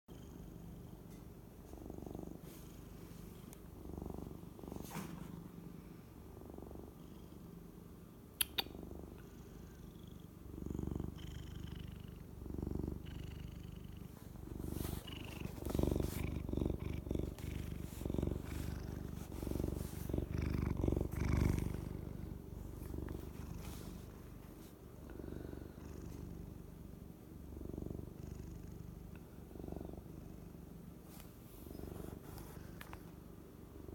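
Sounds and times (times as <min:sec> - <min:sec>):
cat purring: 0:00.1 - 0:33.9.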